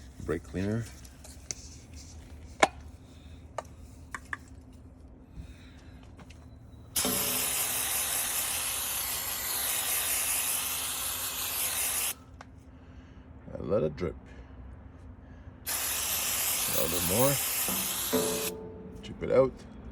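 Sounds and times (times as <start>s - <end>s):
aerosol can spraying hiss: 7.0s - 12.2s, 15.7s - 18.6s.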